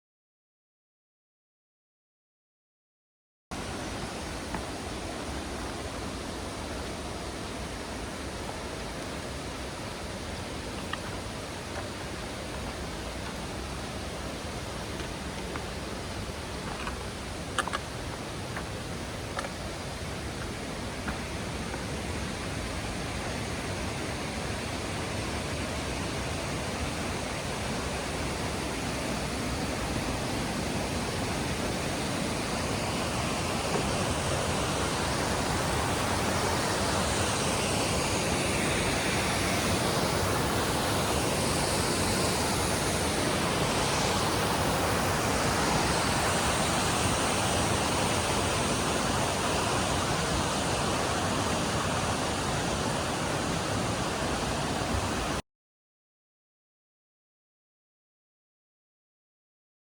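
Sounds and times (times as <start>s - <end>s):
waterfall rushing: 3.6s - 55.4s.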